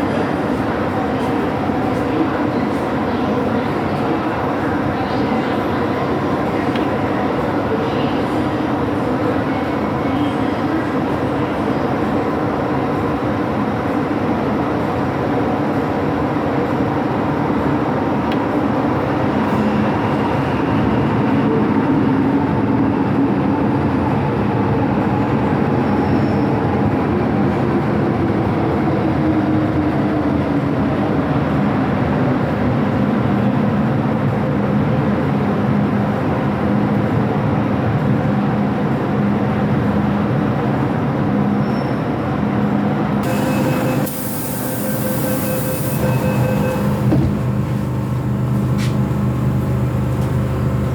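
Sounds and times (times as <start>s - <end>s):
electric train rumbling: 0.0s - 50.9s
train motor whining: 43.2s - 50.9s.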